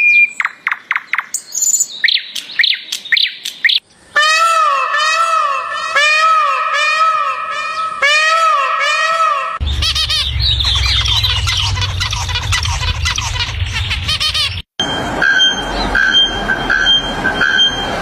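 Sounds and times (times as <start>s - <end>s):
bird squawking call: 4.2s - 14.6s
many birds chirping: 8.6s - 14.6s
low steady rumble: 9.6s - 16.6s.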